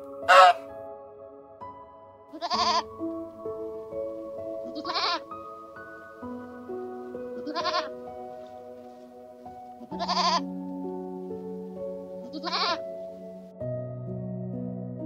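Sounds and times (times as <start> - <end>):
soft background music: 0.0 - 15.0
goat bleating: 0.3 - 0.6, 2.3 - 2.8, 4.7 - 5.2, 7.4 - 7.9, 9.8 - 10.4, 12.3 - 12.8.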